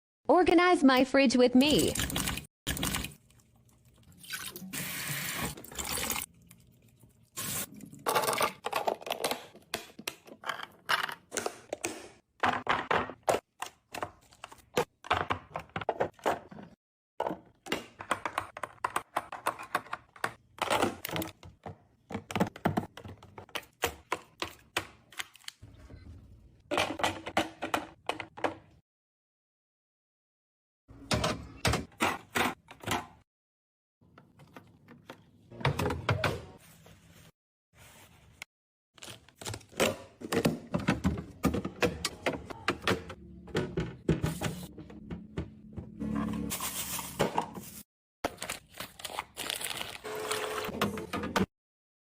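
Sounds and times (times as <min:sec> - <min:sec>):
jars and bottles clattering: 0:07.9 - 0:09.7.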